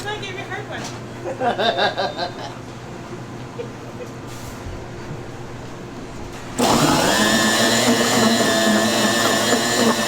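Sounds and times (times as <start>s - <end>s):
spindle mixer whining: 6.6s - 10.0s.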